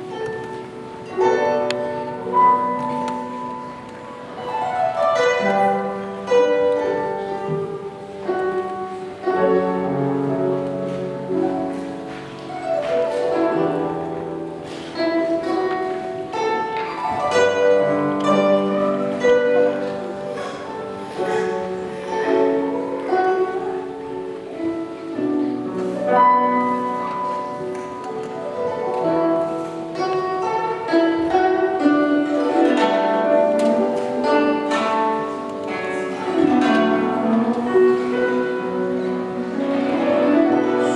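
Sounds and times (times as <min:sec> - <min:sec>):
plucked zither notes: 0:00.0 - 0:40.9
zither glissandi: 0:00.0 - 0:40.9.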